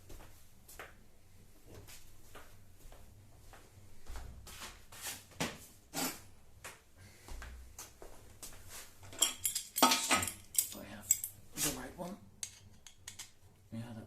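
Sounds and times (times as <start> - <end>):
clicks and knocks of tools: 9.1 - 11.4, 12.4 - 13.4.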